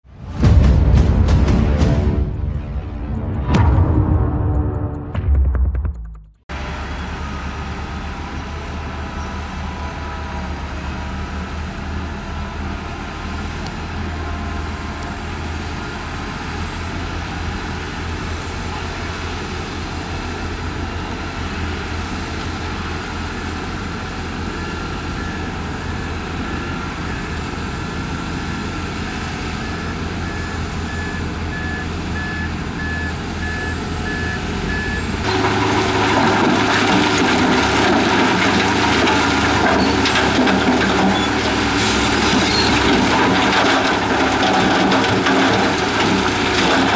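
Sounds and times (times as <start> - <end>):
heavy diesel machinery running: 0.0 - 5.7, 6.5 - 46.9
reversing alarm beeping: 29.0 - 36.9.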